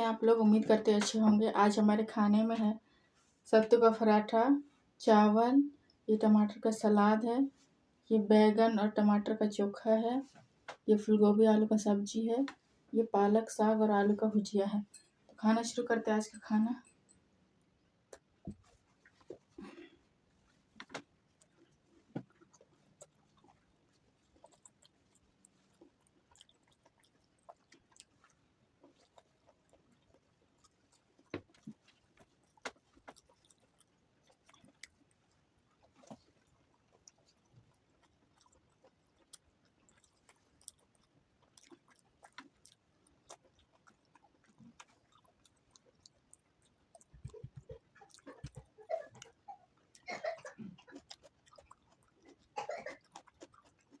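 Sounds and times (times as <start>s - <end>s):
person chewing soft food: 16.6s - 54.0s
mouth clicks and smacks: 20.8s - 54.0s.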